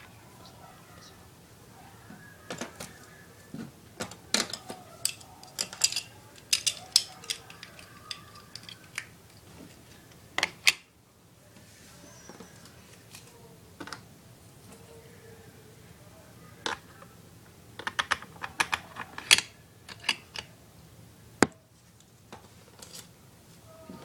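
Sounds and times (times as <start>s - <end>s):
plastic toy pieces clicking: 4.3s - 9.1s, 17.8s - 20.5s.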